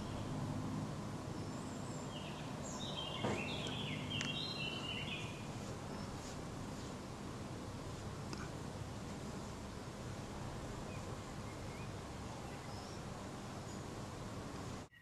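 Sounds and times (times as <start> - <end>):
steady low hum: 0.0 - 14.9
small bird chirping: 1.3 - 6.4, 10.8 - 14.1.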